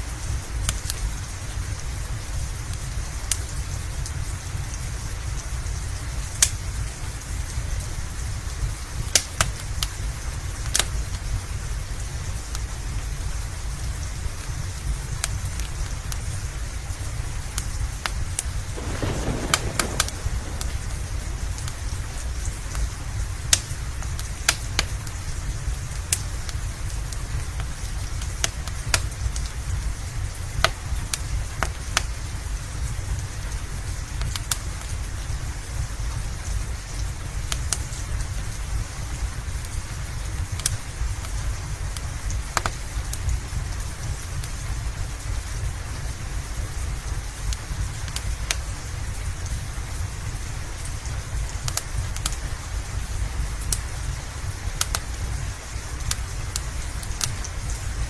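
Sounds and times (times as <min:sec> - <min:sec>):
steady rain: 0:00.0 - 0:58.0
wood fire crackling and popping: 0:06.3 - 0:06.6, 0:08.9 - 0:11.2, 0:17.5 - 0:25.2, 0:39.4 - 0:58.0
low rumble: 0:18.7 - 0:22.8.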